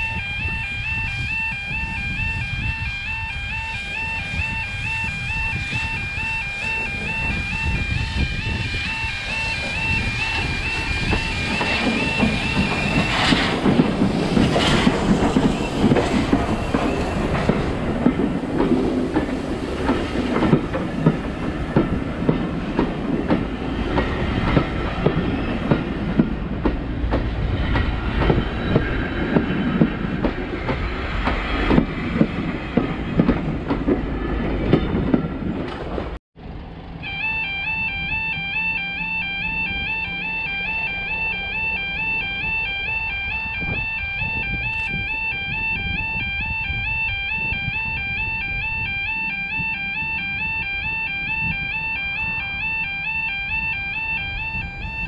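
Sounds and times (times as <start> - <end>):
train rumbling on rails: 0.0 - 55.0
wheels clicking over rail joints: 9.3 - 36.2.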